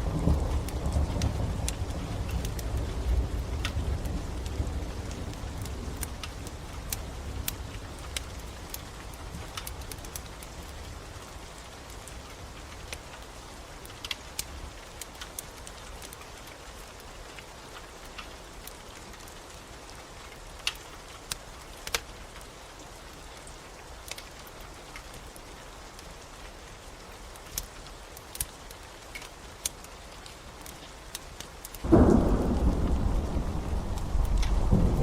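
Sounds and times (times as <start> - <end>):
crackling wood fire: 0.0 - 35.0
steady rain hiss: 0.0 - 35.0
low rumble: 31.9 - 35.0.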